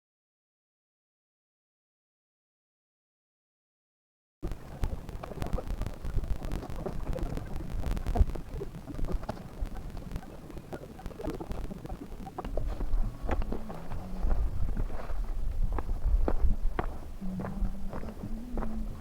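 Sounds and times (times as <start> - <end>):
wind buffeting microphone: 11.2 - 19.0.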